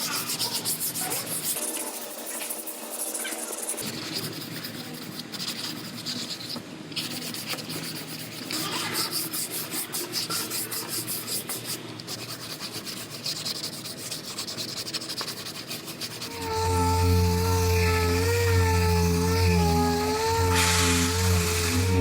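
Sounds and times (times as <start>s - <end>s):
sandpaper rubbing strokes: 0.0s - 22.0s.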